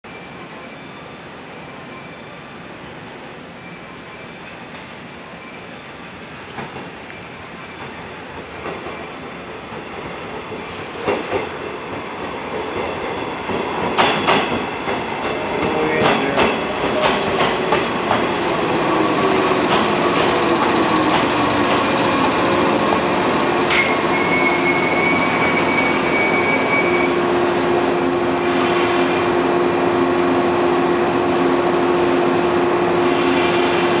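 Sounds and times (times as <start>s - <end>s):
standing train hum: 0.1s - 34.0s
train wheels clacking over rail joints: 9.7s - 22.1s
train brakes squealing: 10.6s - 12.2s, 13.2s - 29.4s, 33.0s - 34.0s.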